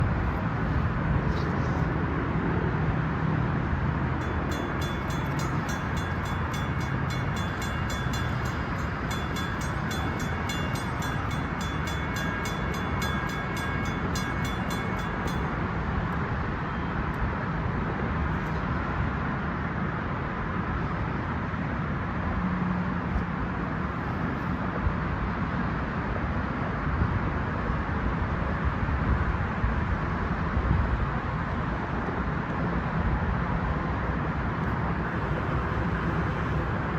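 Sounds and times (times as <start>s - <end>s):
mechanical crossing bell ringing: 4.2s - 15.7s.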